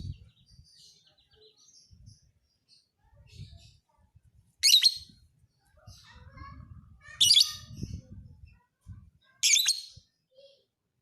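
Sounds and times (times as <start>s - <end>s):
shrill bird chirping: 4.6s - 5.2s, 9.4s - 10.0s.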